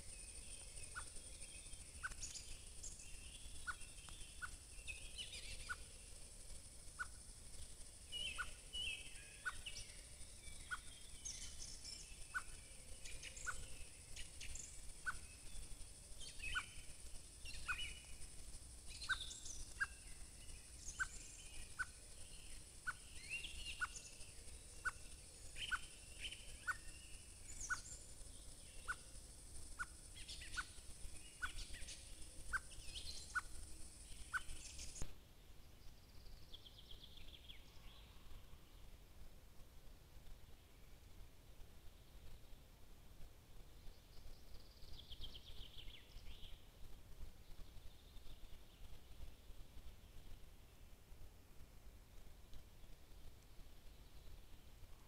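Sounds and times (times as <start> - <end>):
birds chirping and trilling: 0.0 - 7.2, 8.0 - 18.2, 18.9 - 35.0
faint steady hiss: 0.0 - 55.0.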